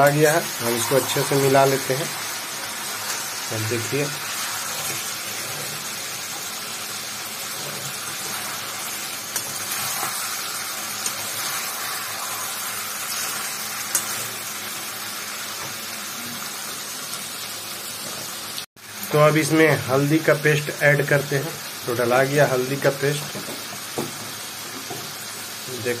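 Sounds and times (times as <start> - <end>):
food sizzling in a pan: 0.0 - 26.0
spatula stirring food: 0.3 - 14.5.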